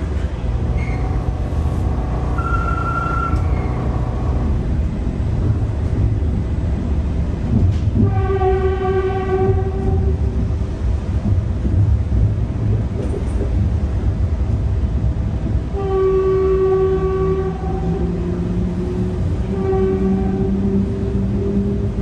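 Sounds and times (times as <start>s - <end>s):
train rumbling on rails: 0.0s - 22.0s
droning tone: 2.4s - 4.4s.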